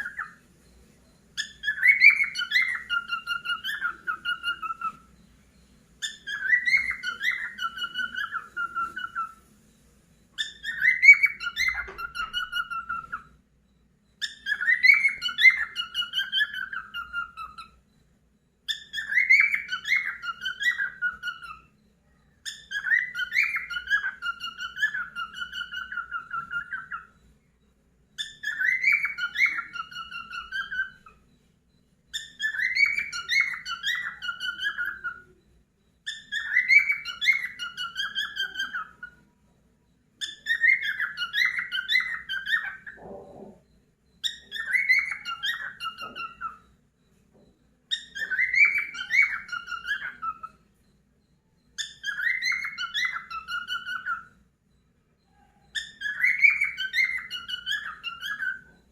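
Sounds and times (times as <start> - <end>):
cockatiel whistling a tune: 0.0 - 13.4, 14.2 - 18.0, 18.6 - 27.4, 28.1 - 31.4, 32.1 - 39.4, 40.1 - 54.5, 55.2 - 58.9.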